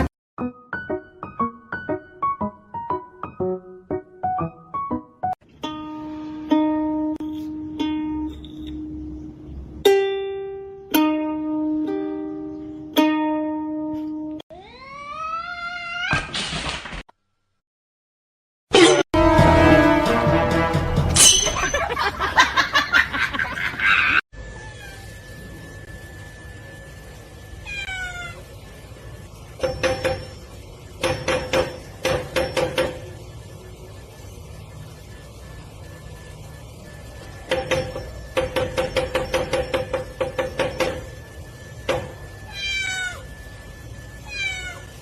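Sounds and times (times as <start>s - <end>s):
plucked ukulele notes: 5.5s - 9.0s, 9.8s - 14.4s
cat meowing: 14.5s - 16.3s, 24.5s - 25.1s, 27.6s - 28.4s, 42.5s - 43.3s, 44.2s - 45.0s.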